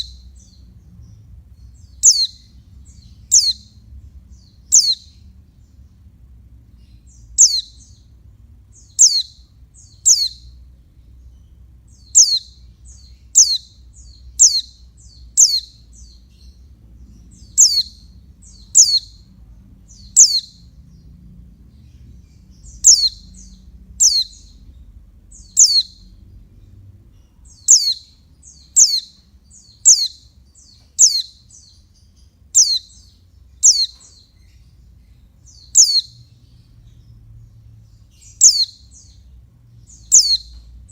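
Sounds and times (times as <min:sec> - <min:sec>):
bird high-pitched call notes: 0:01.9 - 0:02.5, 0:03.3 - 0:03.7, 0:04.7 - 0:05.2, 0:07.4 - 0:08.0, 0:08.9 - 0:10.5, 0:12.0 - 0:16.2, 0:17.4 - 0:19.2, 0:20.0 - 0:20.7, 0:22.7 - 0:24.6, 0:25.4 - 0:26.2, 0:27.5 - 0:31.8, 0:32.6 - 0:34.2, 0:35.5 - 0:36.2, 0:38.3 - 0:39.2, 0:40.0 - 0:40.6.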